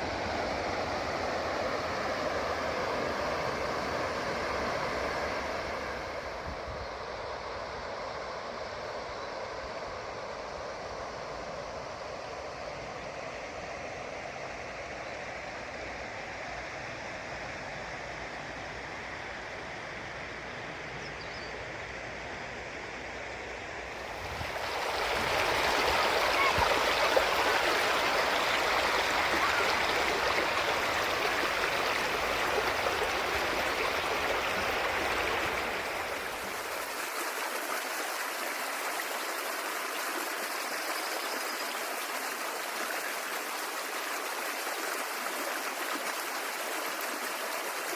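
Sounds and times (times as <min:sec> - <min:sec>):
stream water running over stones: 0:23.9 - 0:47.9.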